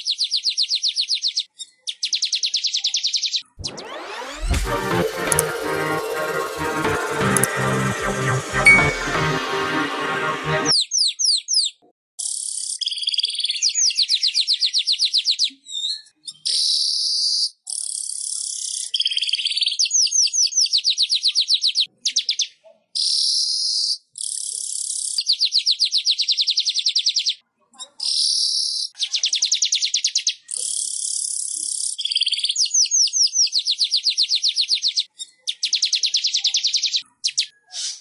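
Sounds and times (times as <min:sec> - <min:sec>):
weaver bird song: 0:00.0 - 0:04.4, 0:10.7 - 0:27.4, 0:28.1 - 0:38.0.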